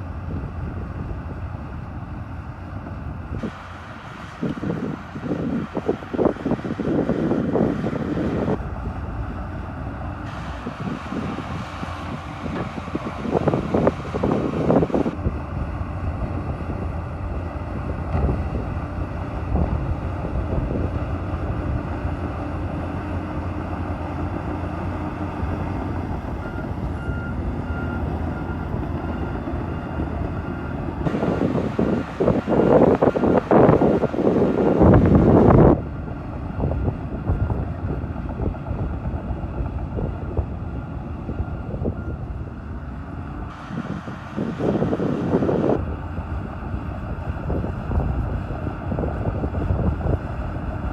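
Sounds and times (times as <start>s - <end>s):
bulldozer diesel engine running: 0.0s - 50.9s
reversing alarm beeping: 25.2s - 33.0s, 41.2s - 43.0s.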